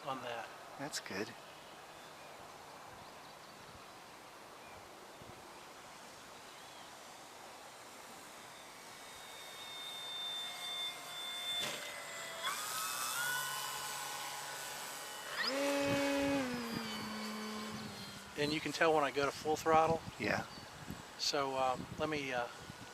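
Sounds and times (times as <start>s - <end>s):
model airplane motor whining: 6.4s - 22.9s.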